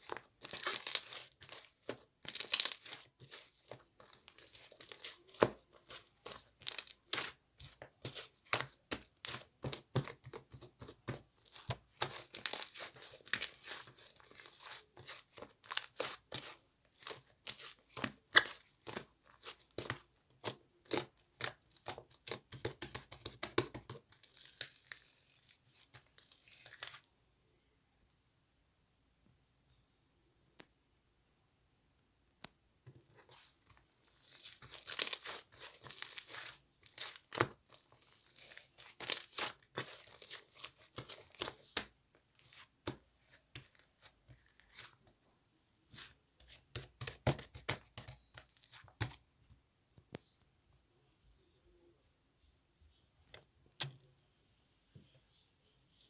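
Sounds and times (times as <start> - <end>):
slime crackling and tearing: 0.1 - 7.4, 11.4 - 18.6, 33.3 - 41.9.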